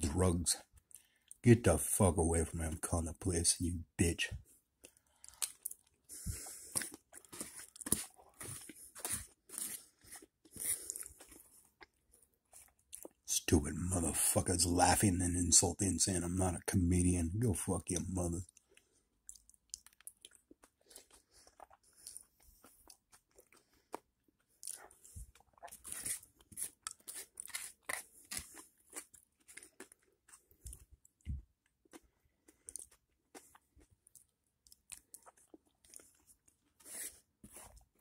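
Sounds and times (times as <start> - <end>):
person chewing crunchy food: 4.8 - 13.2, 18.5 - 38.0.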